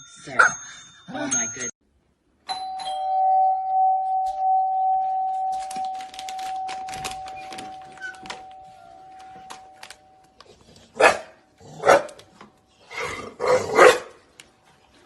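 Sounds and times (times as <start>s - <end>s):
bell ringing: 2.5s - 10.3s
dog barking: 11.0s - 12.2s, 13.7s - 14.2s.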